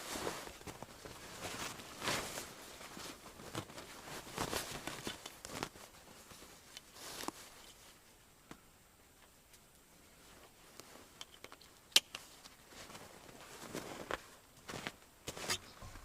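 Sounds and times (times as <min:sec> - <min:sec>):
footsteps crunching in snow: 0:12.7 - 0:16.0.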